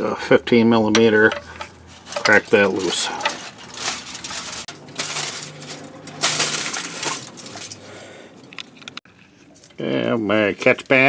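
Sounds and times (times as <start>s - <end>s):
wrench clinking and scraping metal: 0.9s - 9.0s.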